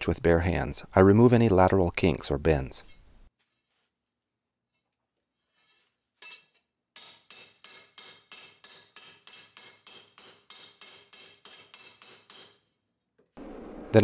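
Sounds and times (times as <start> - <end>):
hammer striking metal on anvil: 6.2 - 12.6.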